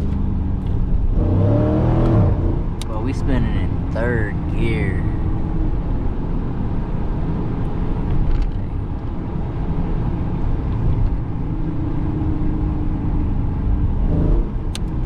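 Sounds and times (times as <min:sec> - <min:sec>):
car engine accelerating hard: 0:00.0 - 0:05.3.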